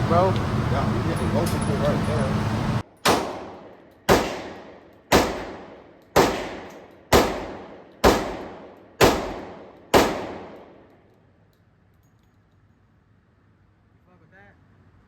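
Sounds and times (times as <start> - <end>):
gunshots with echo: 3.0 - 10.8.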